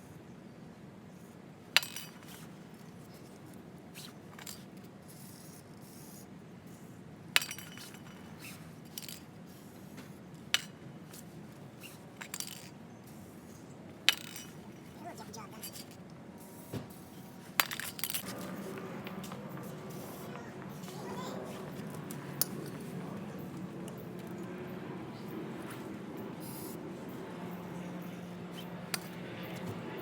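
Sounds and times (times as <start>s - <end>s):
metal tools clinking: 1.8s - 2.5s, 7.4s - 9.3s, 11.8s - 12.7s, 14.1s - 16.0s, 17.6s - 18.5s.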